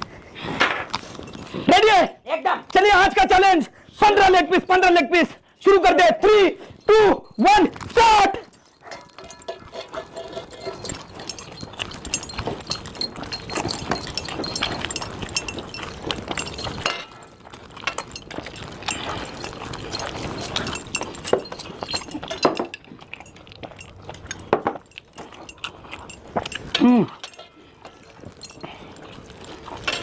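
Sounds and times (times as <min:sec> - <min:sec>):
people chewing and smacking: 0:00.0 - 0:01.8, 0:06.6 - 0:30.0
small clicks and clinks: 0:06.6 - 0:30.0.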